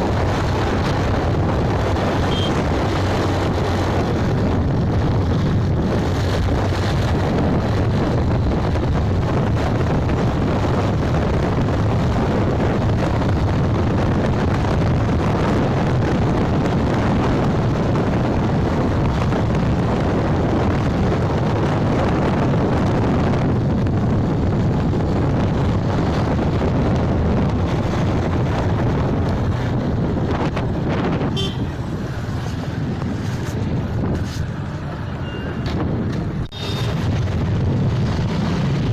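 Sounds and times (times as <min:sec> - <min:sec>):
road noise: 0:00.0 - 0:38.9
wind buffeting microphone: 0:00.0 - 0:38.9.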